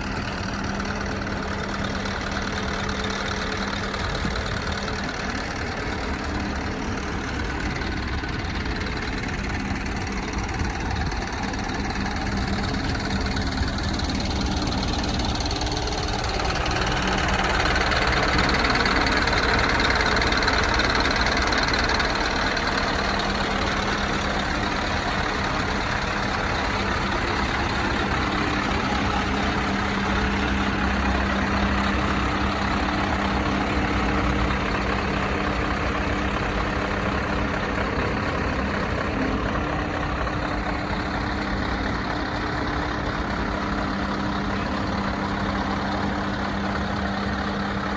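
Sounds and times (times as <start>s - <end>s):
truck diesel engine idling: 0.0s - 47.9s.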